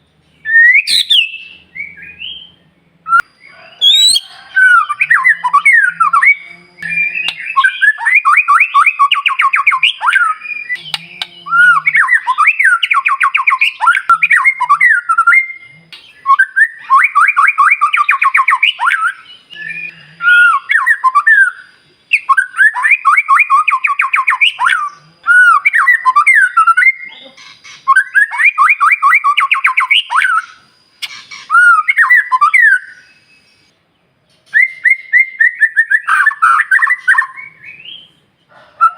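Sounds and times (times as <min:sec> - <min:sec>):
bird singing fast trills: 0:00.4 - 0:38.9.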